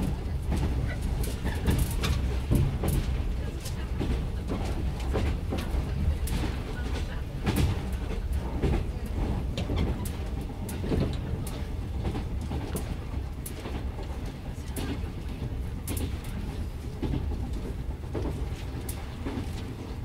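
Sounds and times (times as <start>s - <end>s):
train wheels rumbling: 0.0s - 20.0s.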